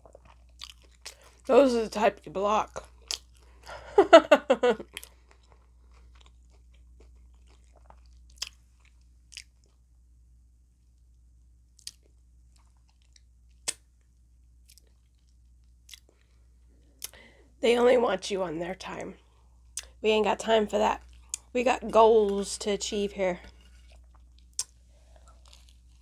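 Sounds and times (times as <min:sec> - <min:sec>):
crunchy chewing of taco shell: 0:00.0 - 0:01.5, 0:02.7 - 0:03.7, 0:04.7 - 0:09.9, 0:11.7 - 0:17.4, 0:23.5 - 0:26.0.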